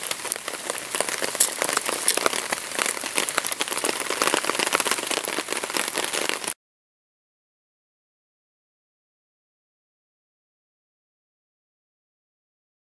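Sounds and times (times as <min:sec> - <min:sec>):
rain pattering on leaves: 0:00.0 - 0:06.6.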